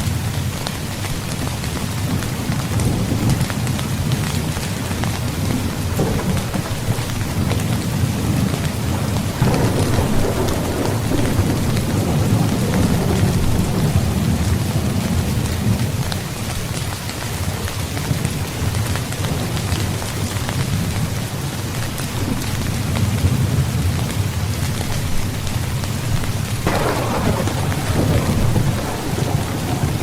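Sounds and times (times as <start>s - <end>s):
heavy rain: 0.0s - 30.0s
thunder rumbling: 2.0s - 16.6s, 22.2s - 30.0s.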